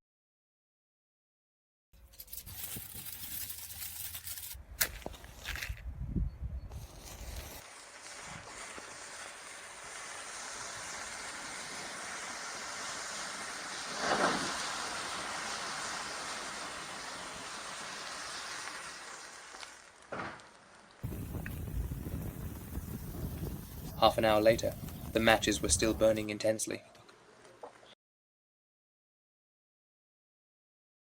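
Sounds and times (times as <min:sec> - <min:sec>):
burning matches hissing: 0:02.2 - 0:05.8, 0:06.7 - 0:26.2.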